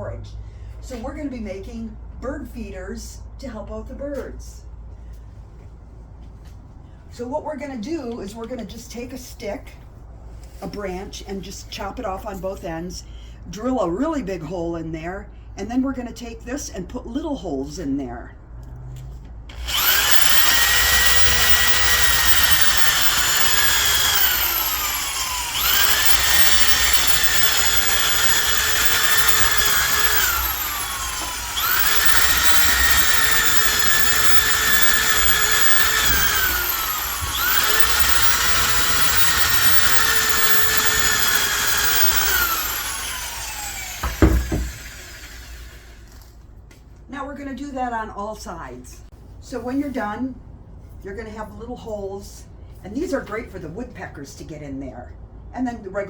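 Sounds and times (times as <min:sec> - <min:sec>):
electric drill boring into wood: 0:19.5 - 0:46.2.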